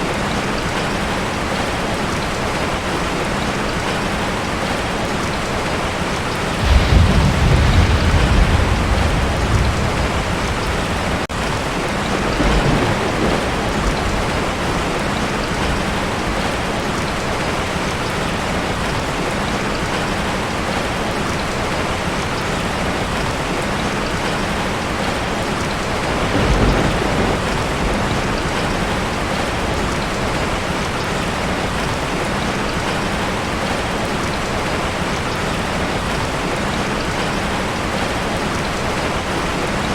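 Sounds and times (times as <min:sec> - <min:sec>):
heavy rain on a metal roof: 0:00.0 - 0:39.9
thunder rumbling: 0:06.5 - 0:17.6, 0:24.9 - 0:32.1.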